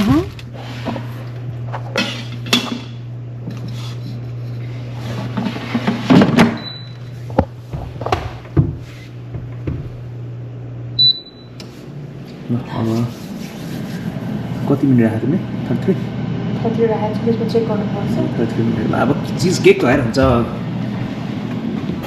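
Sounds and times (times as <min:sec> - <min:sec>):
kitchen appliance humming: 0:00.0 - 0:22.0
doors and dishes clattering: 0:01.7 - 0:04.1.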